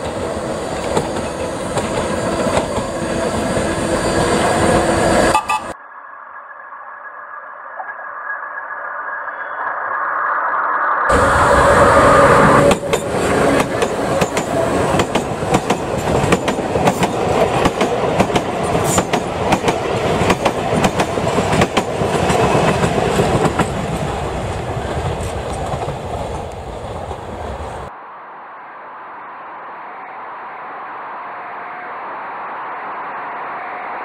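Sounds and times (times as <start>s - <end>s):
wheels clacking over rail joints: 0.0s - 5.7s, 11.1s - 27.6s
electric train passing: 0.0s - 34.0s.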